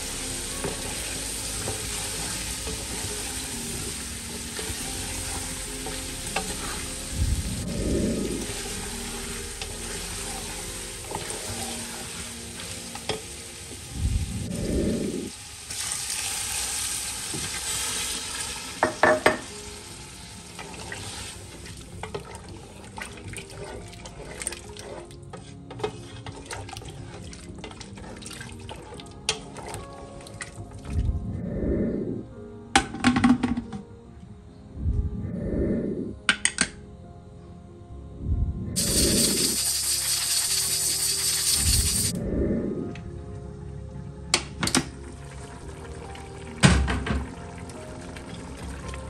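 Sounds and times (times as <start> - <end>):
water pouring into pot: 0.0 - 25.2, 25.8 - 30.6, 38.8 - 42.2
curry sizzling in pot: 0.0 - 30.2, 38.8 - 42.2.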